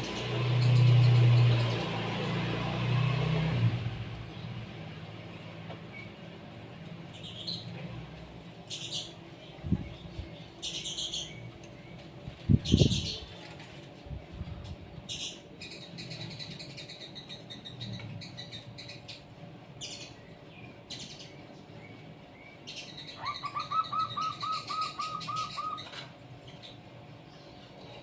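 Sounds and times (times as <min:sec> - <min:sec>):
small birds chirping: 0:07.1 - 0:07.8, 0:08.6 - 0:13.3, 0:15.0 - 0:28.0
bird repeated upturned notes: 0:23.2 - 0:25.9.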